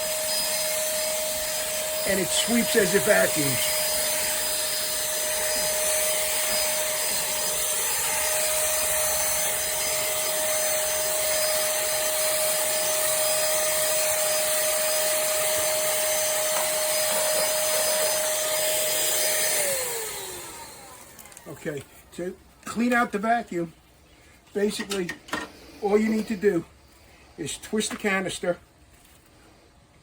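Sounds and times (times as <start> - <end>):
handheld vacuum cleaner whining: 0.0 - 21.8.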